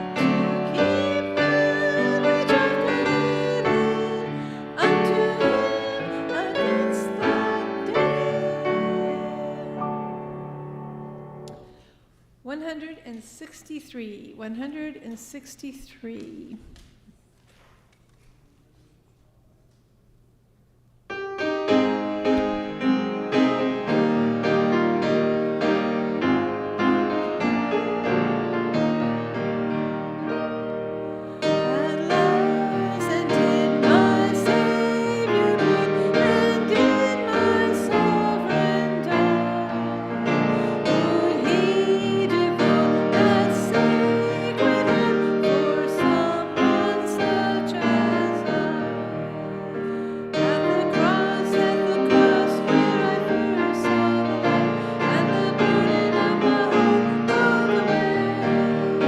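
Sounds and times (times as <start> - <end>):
voices singing a hymn: 0.0 - 11.8, 30.4 - 59.0
piano playing a hymn: 0.0 - 12.0, 21.1 - 59.0.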